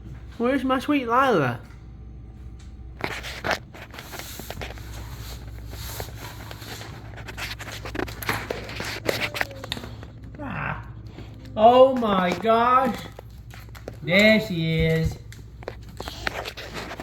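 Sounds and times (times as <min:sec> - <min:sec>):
scraping and rustling: 0:03.0 - 0:10.4, 0:11.0 - 0:17.0.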